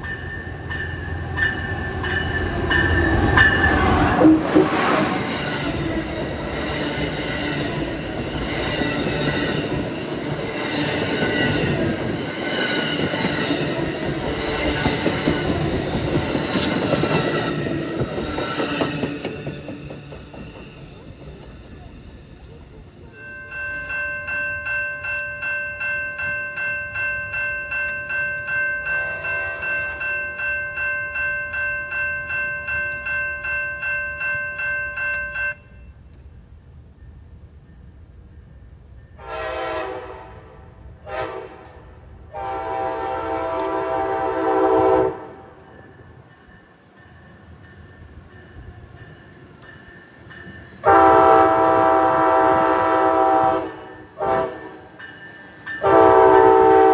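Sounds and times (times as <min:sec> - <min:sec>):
railroad crossing bell ringing: 0:00.0 - 0:36.1, 0:42.4 - 0:56.9
locomotive horn blasts: 0:39.2 - 0:45.6, 0:50.8 - 0:54.9, 0:55.8 - 0:56.9.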